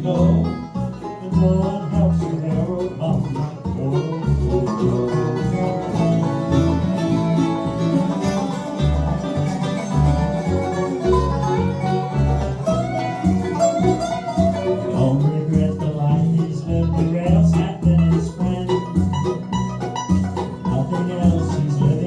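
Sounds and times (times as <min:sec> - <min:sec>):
bowed string instrument: 0:00.0 - 0:22.0
guitar: 0:00.0 - 0:22.0
picked banjo: 0:00.0 - 0:22.0
steady bass pulse: 0:00.2 - 0:22.0.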